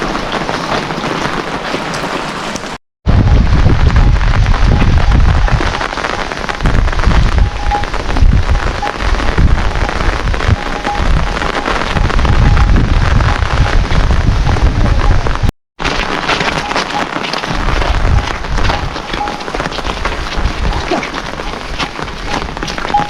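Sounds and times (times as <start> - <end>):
heavy rain falling: 0.0 - 23.0
low rumble: 3.1 - 5.8, 6.4 - 15.5.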